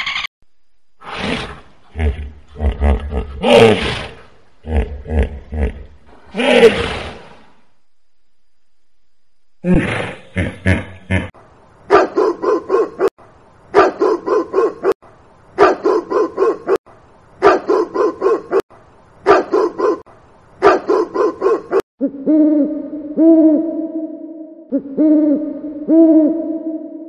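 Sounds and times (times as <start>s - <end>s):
dog barking: 11.9s - 13.1s, 13.7s - 15.0s, 15.6s - 16.8s, 17.4s - 18.6s, 19.2s - 20.0s, 20.6s - 21.8s.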